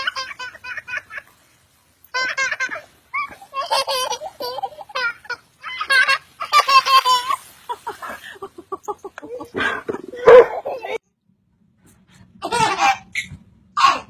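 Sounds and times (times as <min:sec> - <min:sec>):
baby giggling: 0:02.2 - 0:07.4, 0:08.9 - 0:11.0, 0:12.4 - 0:14.0.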